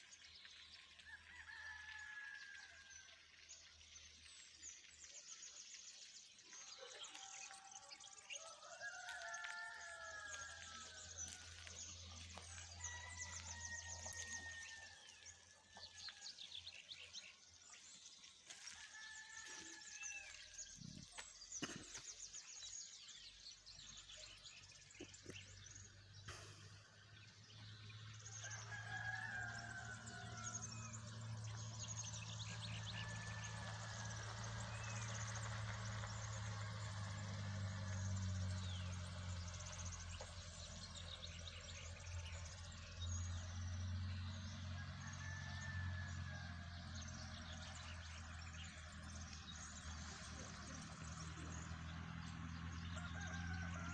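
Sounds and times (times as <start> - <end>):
rooster crowing: 1.1 - 2.9, 7.8 - 11.7, 12.4 - 15.2, 28.4 - 31.6, 44.7 - 48.5, 52.7 - 53.9.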